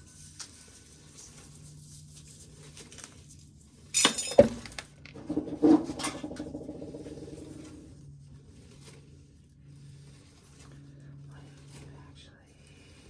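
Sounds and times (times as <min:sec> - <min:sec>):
corn rattling: 0:04.3 - 0:07.9.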